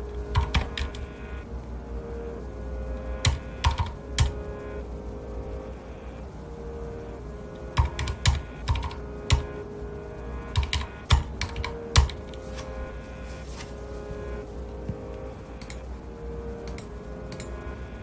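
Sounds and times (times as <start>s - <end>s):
typing on mechanical keyboard: 0.3s - 1.0s, 3.2s - 4.3s, 7.8s - 9.5s, 10.5s - 12.2s.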